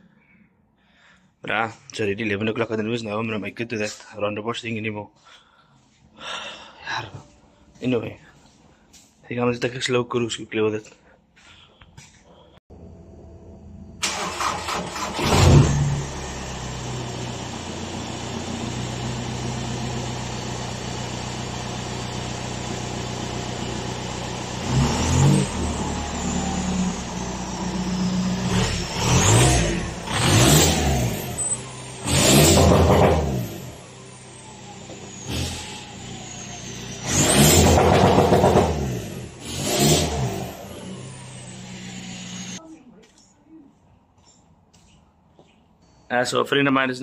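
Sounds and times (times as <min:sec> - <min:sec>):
car engine starting and revving: 0:14.0 - 0:42.6.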